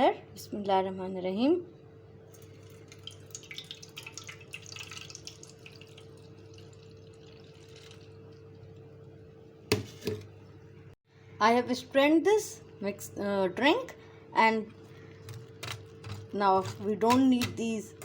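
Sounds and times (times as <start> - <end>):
steady faint hum: 0.0 - 18.0
liquid trickling and dripping: 2.3 - 8.9.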